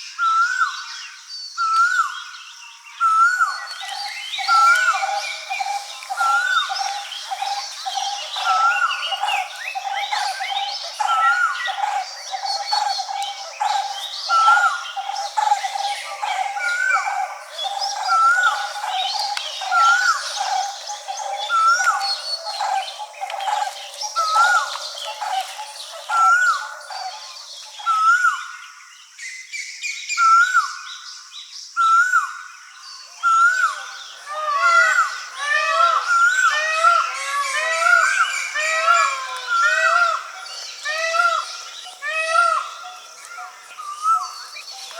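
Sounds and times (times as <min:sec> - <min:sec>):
birds calling: 0:03.0 - 0:28.8, 0:33.2 - 0:44.9
bird trilling: 0:03.8 - 0:27.3.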